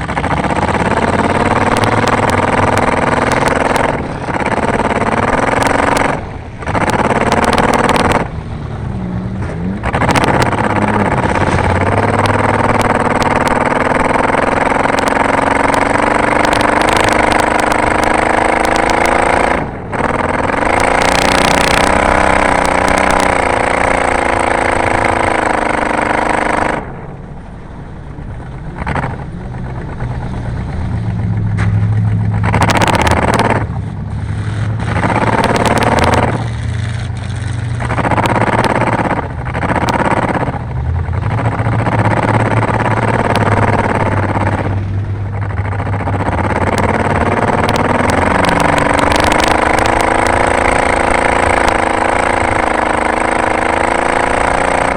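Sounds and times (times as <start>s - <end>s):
racing car engine revving: 0.0s - 27.1s, 28.3s - 54.9s.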